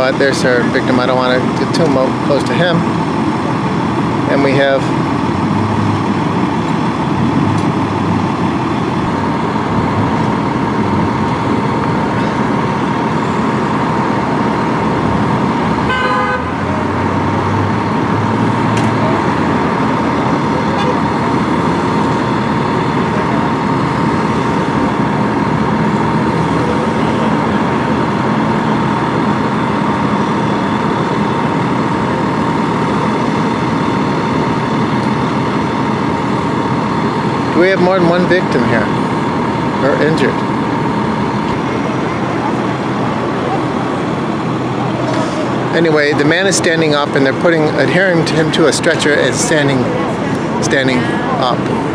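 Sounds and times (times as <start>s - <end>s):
continuous high-pitched tone: 0.0s - 51.9s
road traffic and idling vehicles: 0.0s - 51.9s.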